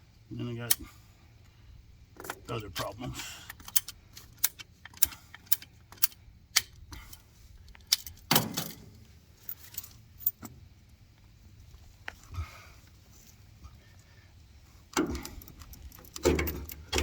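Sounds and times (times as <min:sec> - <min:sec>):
metallic clicks of tools and fittings: 0:02.2 - 0:08.8, 0:14.9 - 0:17.0.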